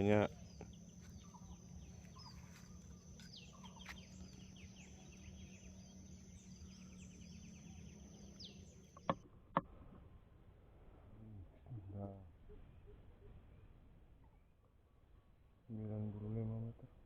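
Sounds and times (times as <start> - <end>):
small birds chirping: 0.0 - 9.2
low hum: 0.0 - 16.9.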